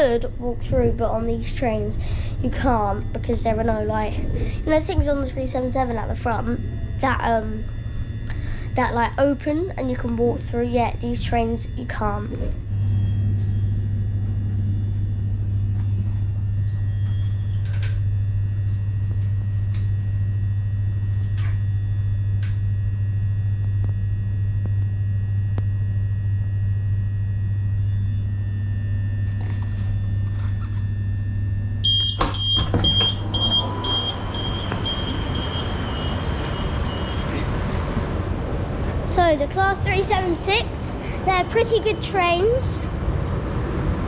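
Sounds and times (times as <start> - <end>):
train electrical hum: 0.0 - 44.0
short high beeps: 31.9 - 39.0.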